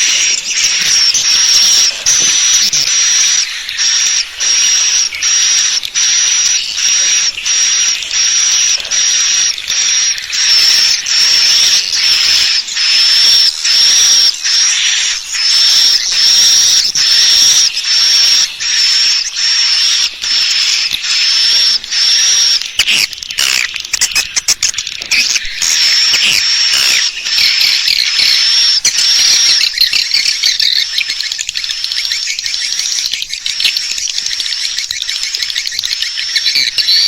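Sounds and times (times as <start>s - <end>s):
high twittering bird chirps: 0.0s - 37.0s.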